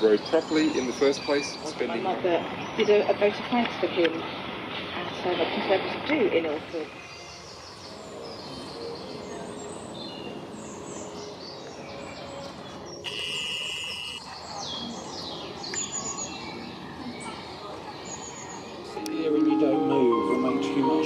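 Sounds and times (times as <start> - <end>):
small birds chirping: 0.0 - 19.0
steady high bird note: 13.0 - 14.2.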